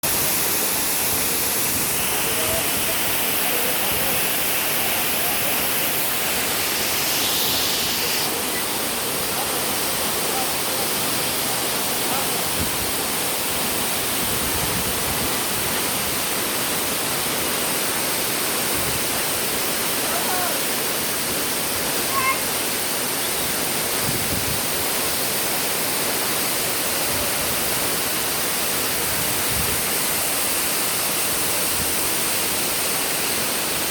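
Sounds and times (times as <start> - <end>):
waterfall rushing: 0.0 - 33.9
faint voices: 1.2 - 12.8, 20.0 - 20.8.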